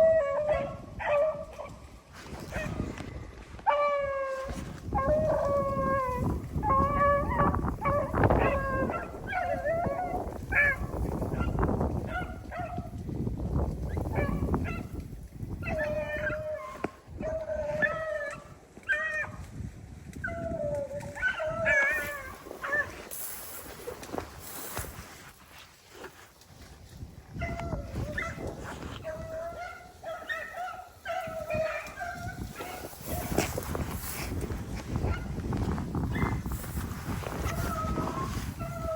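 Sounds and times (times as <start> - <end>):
hounds baying and yelping: 0.0 - 1.8, 3.6 - 12.9, 13.9 - 15.0, 15.6 - 19.4, 20.2 - 23.1, 27.4 - 34.4, 37.3 - 38.9.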